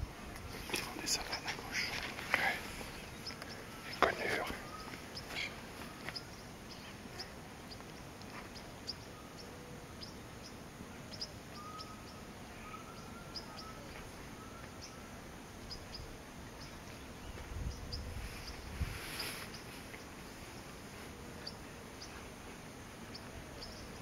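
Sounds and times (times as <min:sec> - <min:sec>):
distant birds chirping: 0:00.0 - 0:24.0
soft whistled bird notes: 0:02.9 - 0:07.4, 0:11.1 - 0:20.1.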